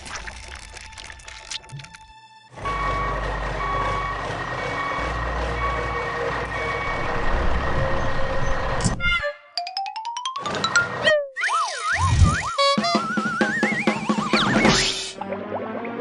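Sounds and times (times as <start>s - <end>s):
truck reversing alarm beeping: 2.6s - 8.8s.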